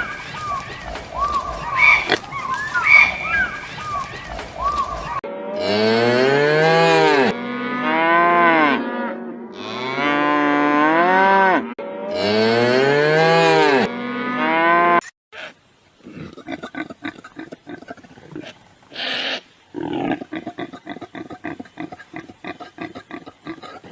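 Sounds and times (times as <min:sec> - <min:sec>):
cattle mooing: 0:05.5 - 0:15.0.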